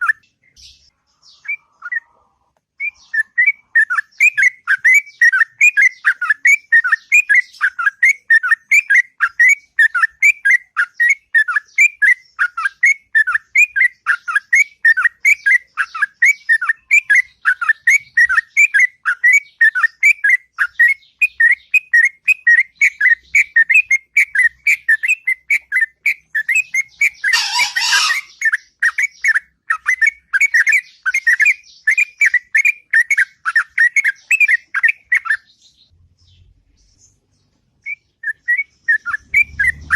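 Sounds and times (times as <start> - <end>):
bird singing whistled notes: 0.0 - 2.1, 2.8 - 39.9.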